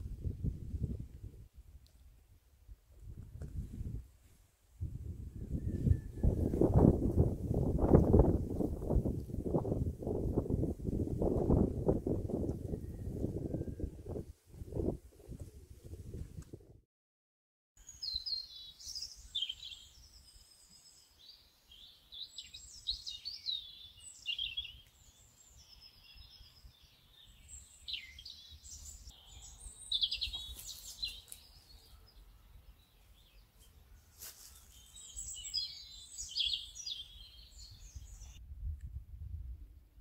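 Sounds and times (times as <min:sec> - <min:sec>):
songbirds singing: 0:17.8 - 0:38.4.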